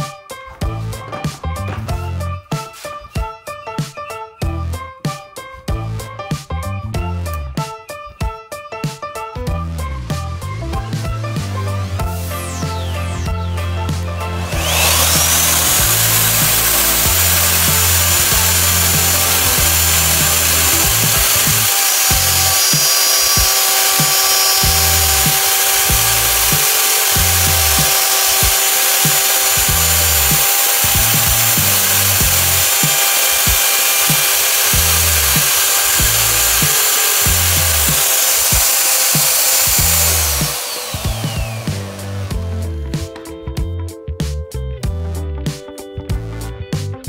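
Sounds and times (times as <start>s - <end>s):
music with steady beat: 0.0s - 47.0s
router whining cutting wood: 10.7s - 43.3s.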